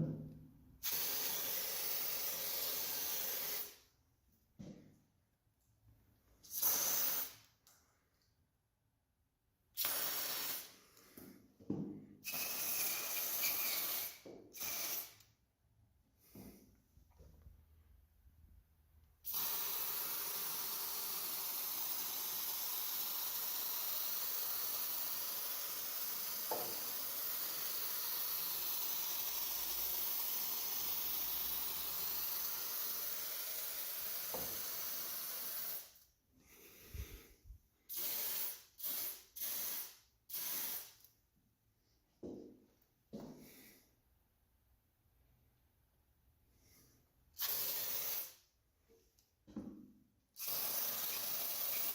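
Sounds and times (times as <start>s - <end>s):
aerosol can spraying: 0.8s - 3.8s, 6.4s - 7.5s, 9.8s - 11.2s, 12.2s - 15.3s, 19.2s - 36.1s, 37.9s - 41.1s, 47.4s - 48.5s, 50.4s - 51.9s.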